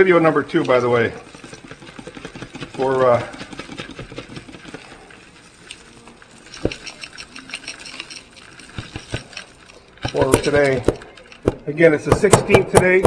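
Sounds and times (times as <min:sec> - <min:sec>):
birdseed pattering through funnel: 0:00.0 - 0:13.0
sharp knocks: 0:10.0 - 0:13.0.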